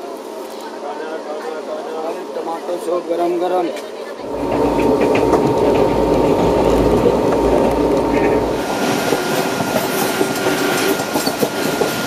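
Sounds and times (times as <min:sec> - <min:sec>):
train running heard inside coach: 0:03.8 - 0:12.0.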